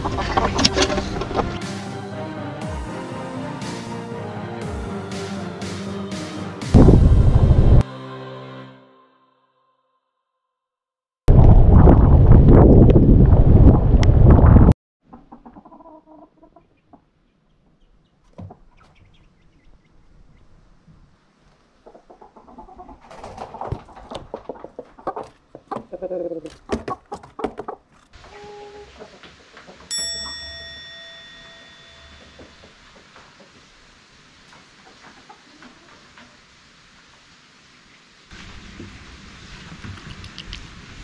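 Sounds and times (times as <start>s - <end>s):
chickens clucking: 0.0s - 1.6s, 15.1s - 20.6s, 21.6s - 29.9s, 34.4s - 36.4s
wind on microphone: 6.7s - 7.8s, 11.3s - 14.8s
ringing tone: 29.9s - 32.7s.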